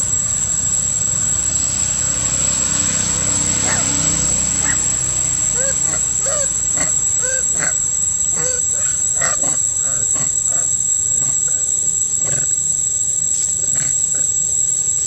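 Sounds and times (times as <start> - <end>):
steady high-pitched whine: 0.0 - 15.0
monkeys squeaking: 4.6 - 12.6.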